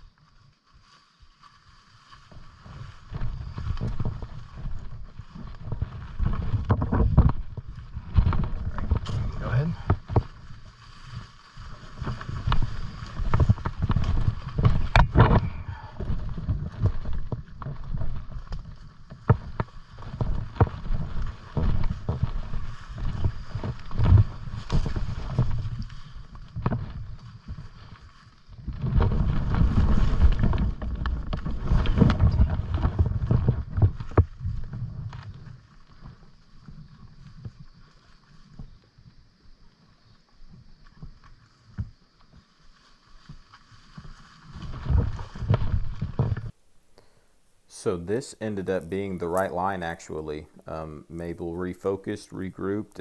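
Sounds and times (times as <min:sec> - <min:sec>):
footsteps rustling through brush: 0:00.0 - 0:38.6, 0:40.8 - 0:53.0
wind rumble on microphone: 0:02.1 - 0:39.5, 0:43.2 - 0:46.6
twigs snapping: 0:46.4 - 0:53.0.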